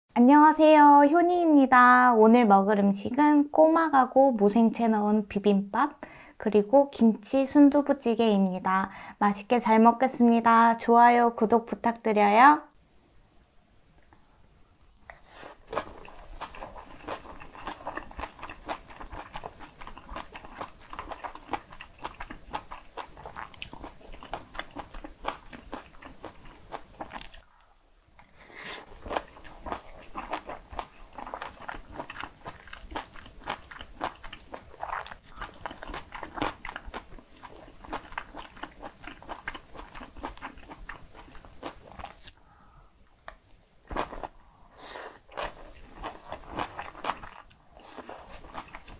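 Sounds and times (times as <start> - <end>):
wet chewing and crunching: 15.5 - 27.5, 28.8 - 42.4, 43.0 - 44.5, 45.2 - 48.9.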